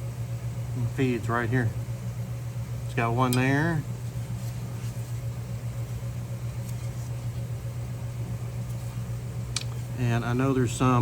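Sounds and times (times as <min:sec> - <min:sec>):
low mechanical motor hum: 0:00.0 - 0:11.0.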